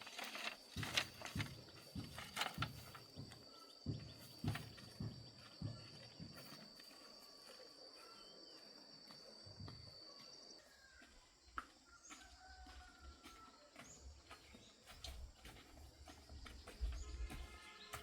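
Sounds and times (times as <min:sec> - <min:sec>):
high insect trill: 0:00.0 - 0:11.0.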